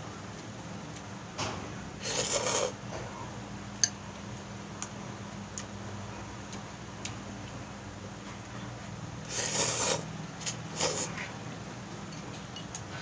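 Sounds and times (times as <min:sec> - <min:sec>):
noodle slurp: 0:02.0 - 0:02.8, 0:09.3 - 0:10.1, 0:10.7 - 0:11.2.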